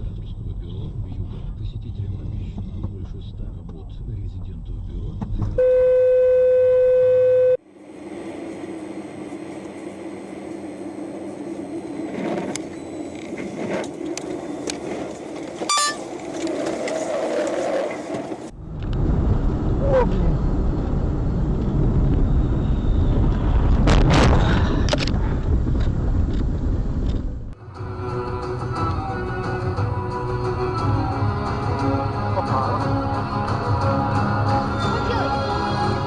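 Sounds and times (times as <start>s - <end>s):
vehicle road noise: 0.0s - 36.0s
pitched beep tone: 5.6s - 7.6s, 15.7s - 16.0s.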